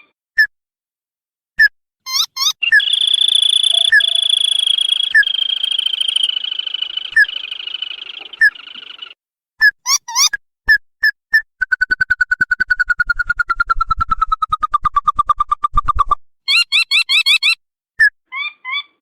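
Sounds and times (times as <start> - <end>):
crake whistles and trill: 2.1 - 10.4, 11.3 - 18.1.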